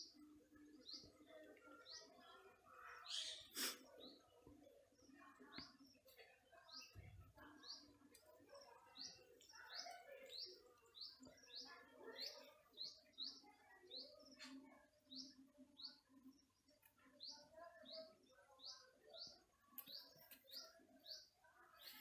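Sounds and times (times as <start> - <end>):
softer lower bird chirping: 2.7 - 4.2.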